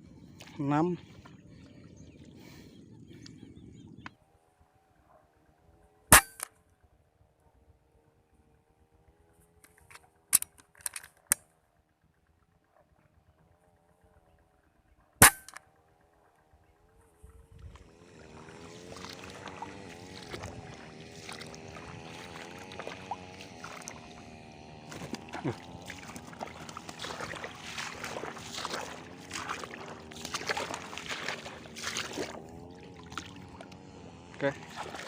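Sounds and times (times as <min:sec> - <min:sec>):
wavering hum: 0:12.5 - 0:35.0
rustling or splashing noises: 0:17.5 - 0:35.0.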